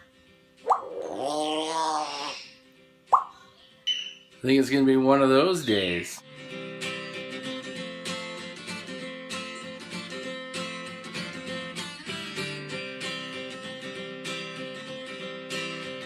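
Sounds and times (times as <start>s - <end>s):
acoustic guitar strumming chords: 6.2s - 16.0s.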